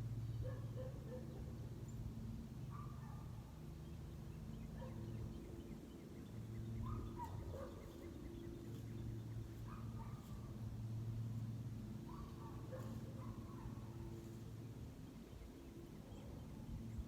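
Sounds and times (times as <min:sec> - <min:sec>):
low steady hum: 0:00.0 - 0:17.0
faint bird calls: 0:02.7 - 0:10.6.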